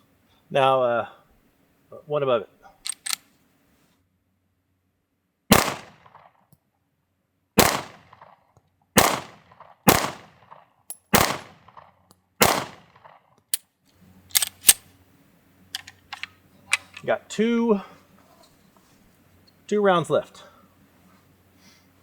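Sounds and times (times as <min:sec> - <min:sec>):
pistol shots with echo: 0:05.5 - 0:06.3, 0:07.6 - 0:08.4, 0:09.0 - 0:13.2.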